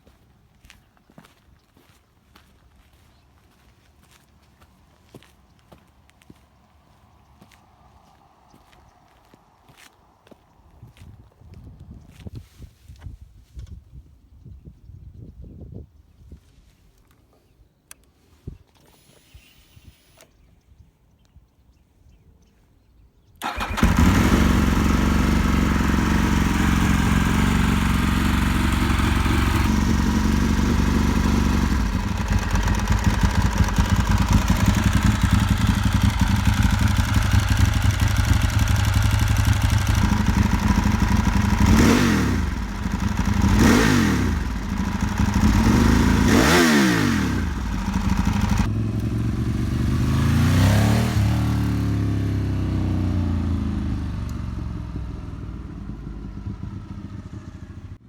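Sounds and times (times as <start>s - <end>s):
motorcycle engine idling: 23.4s - 58.0s
motorcycle engine revving: 23.4s - 58.0s.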